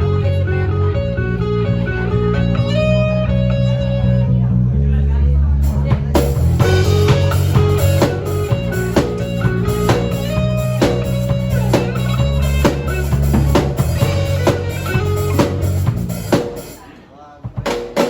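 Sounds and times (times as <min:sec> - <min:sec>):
bass line: 0:00.0 - 0:16.9
guitar: 0:00.0 - 0:18.0
drum kit beat: 0:05.6 - 0:18.0.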